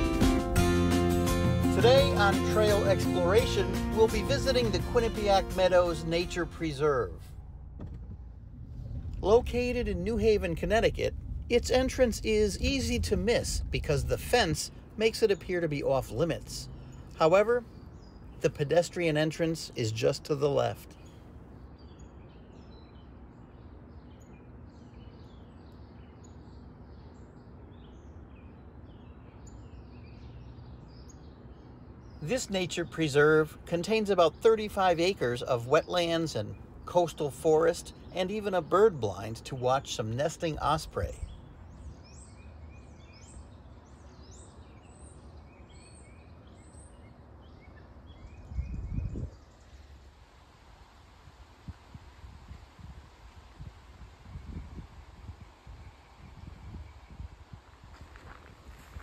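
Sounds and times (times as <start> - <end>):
low buffeting sound: 0.0 - 21.6
low background rumble: 0.0 - 59.0
small birds chirping: 1.3 - 7.4, 8.3 - 59.0.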